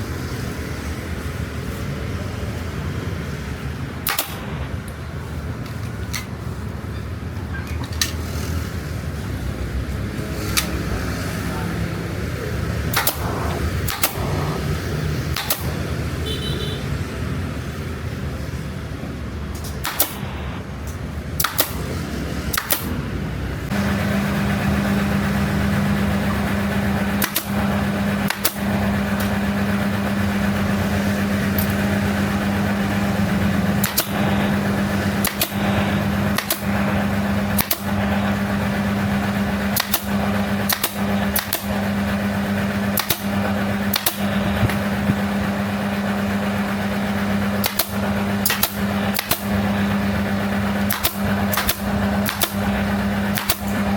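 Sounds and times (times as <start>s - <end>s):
machine humming: 11.7s - 16.8s, 23.1s - 53.9s
sharp snapping clicks: 15.3s - 15.7s, 50.9s - 52.6s.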